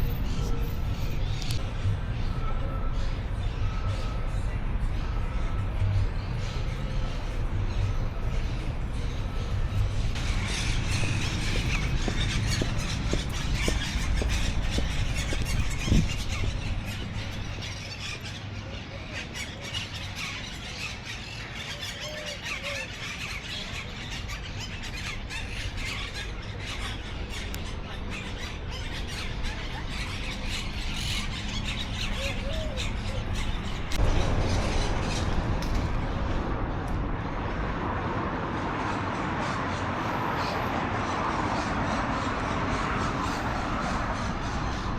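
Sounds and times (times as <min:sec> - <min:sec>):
low steady rumble: 0:00.0 - 0:17.7
birds chirping and squawking: 0:00.0 - 0:37.5, 0:39.1 - 0:44.9.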